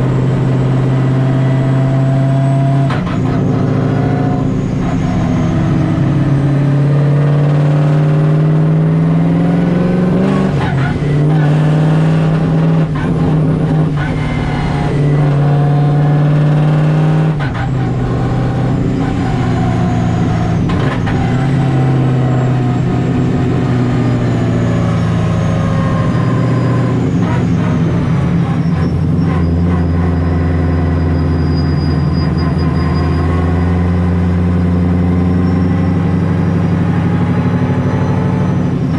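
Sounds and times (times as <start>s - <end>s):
car engine revving through gears: 0.0s - 38.9s.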